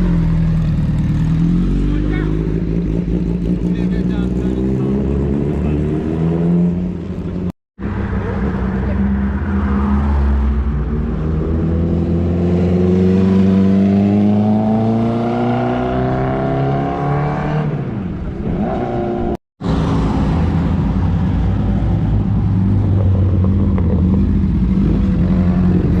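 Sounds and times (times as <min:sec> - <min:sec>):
motorcycle engine revving: 0:00.0 - 0:07.5, 0:10.7 - 0:26.0.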